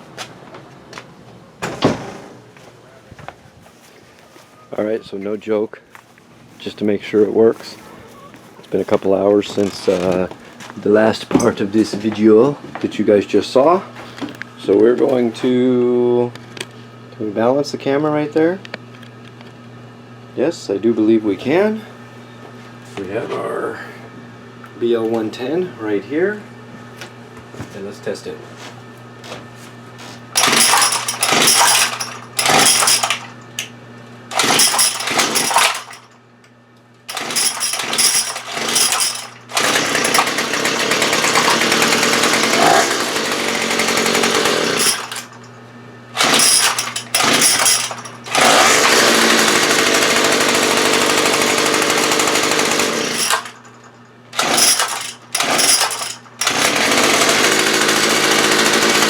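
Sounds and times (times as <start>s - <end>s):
small two-stroke engine starting: 30.4s - 33.4s, 34.3s - 36.1s, 37.1s - 45.4s, 46.2s - 53.7s, 54.4s - 59.0s.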